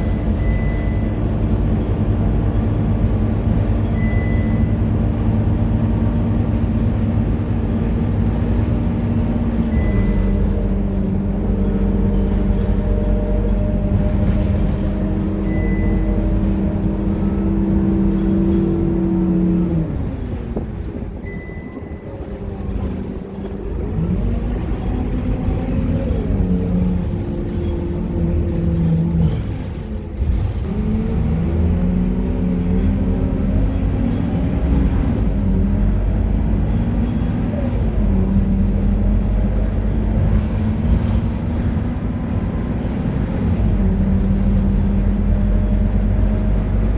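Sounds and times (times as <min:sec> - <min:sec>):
short high beep: 0:00.0 - 0:01.2, 0:04.0 - 0:04.8, 0:09.7 - 0:10.4, 0:15.4 - 0:16.1, 0:21.2 - 0:22.1
bus diesel engine: 0:00.0 - 0:46.9.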